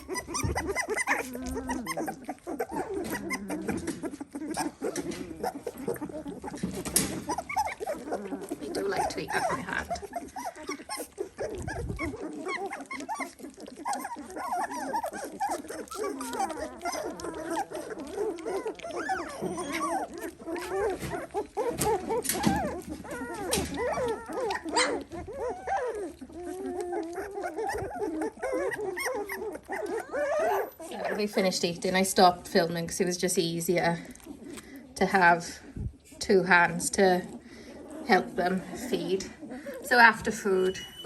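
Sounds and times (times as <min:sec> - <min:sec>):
puppies whining and squeaking: 0:00.0 - 0:41.0.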